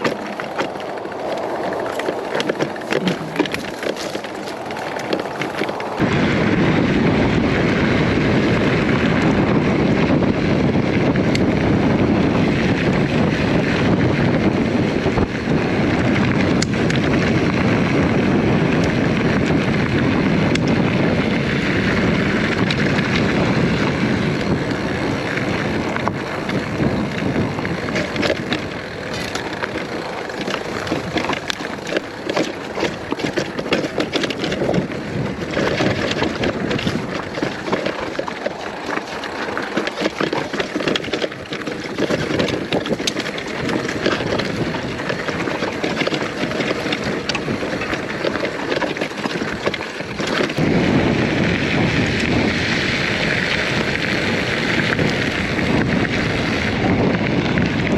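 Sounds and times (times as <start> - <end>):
small clicks and rattles: 0.0 - 6.0, 24.4 - 50.6
mountain bike ride noise: 0.0 - 57.9
wind buffeting microphone: 0.0 - 57.9.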